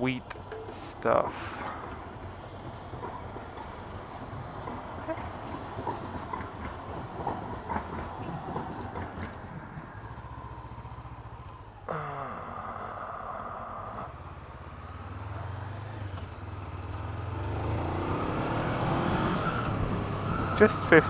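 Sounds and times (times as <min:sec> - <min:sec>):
motorcycle engine: 0:06.2 - 0:21.0
hiss with falling tone: 0:11.9 - 0:14.2.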